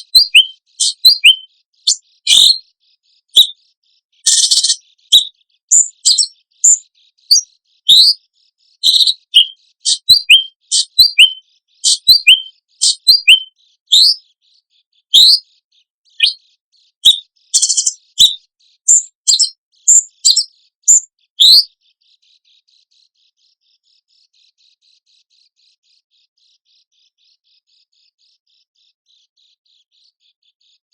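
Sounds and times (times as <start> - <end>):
songbird sharp piercing notes: 0.0 - 2.6, 3.3 - 3.6, 4.2 - 8.2, 8.8 - 14.3, 15.1 - 15.4, 16.1 - 16.4, 17.0 - 21.7
faint high bird chatter: 0.0 - 30.9.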